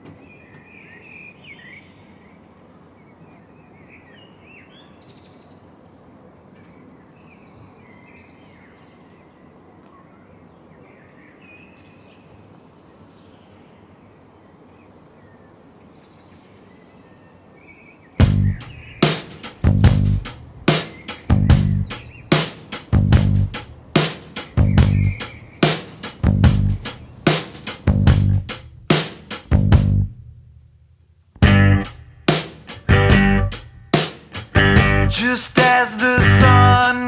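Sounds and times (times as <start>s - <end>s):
outdoor background hiss: 0.0s - 37.0s
birds chirping and whistling: 0.1s - 5.6s, 10.5s - 28.4s.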